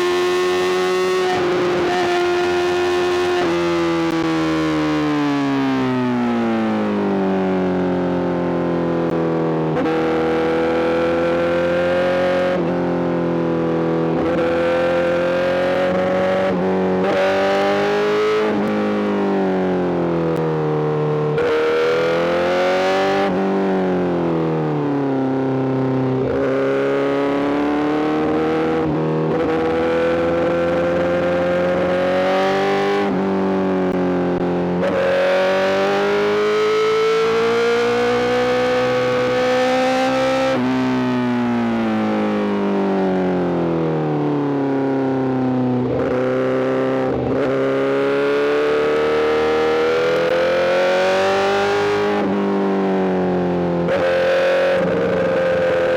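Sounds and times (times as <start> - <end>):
motorcycle engine revving: 26.2 - 41.0, 45.8 - 55.9.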